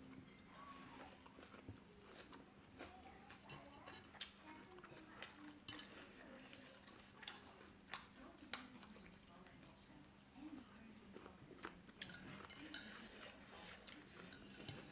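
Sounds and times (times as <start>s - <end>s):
sharp eating clicks and taps: 1.2s - 6.1s, 6.8s - 10.2s.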